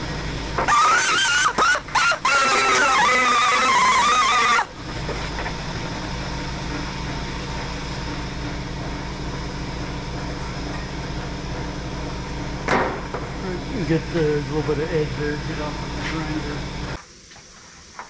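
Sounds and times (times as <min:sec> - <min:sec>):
angle grinder grinding metal: 0:00.0 - 0:06.1
quiet machine hum: 0:00.0 - 0:18.0.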